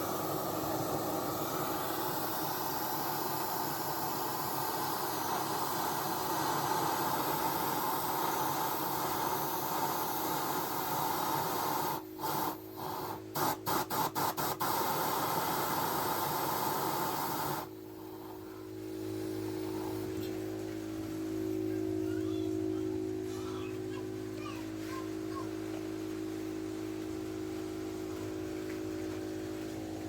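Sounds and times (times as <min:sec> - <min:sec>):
oil burner stove hissing: 0:00.0 - 0:20.7.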